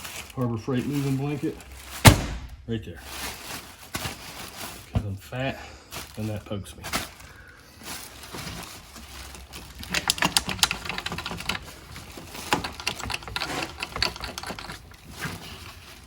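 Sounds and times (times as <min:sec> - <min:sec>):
metal tools and parts clattering: 0:08.4 - 0:16.0.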